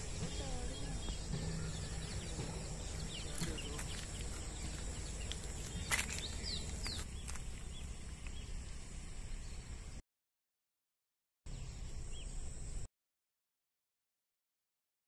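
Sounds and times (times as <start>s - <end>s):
bird chirps: 0.0s - 10.0s
steady low rumble: 0.0s - 10.0s.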